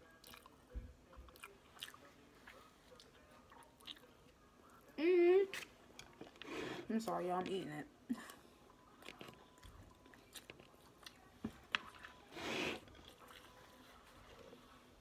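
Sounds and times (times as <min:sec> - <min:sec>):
wet chewing clicks and smacks: 0:00.2 - 0:04.4.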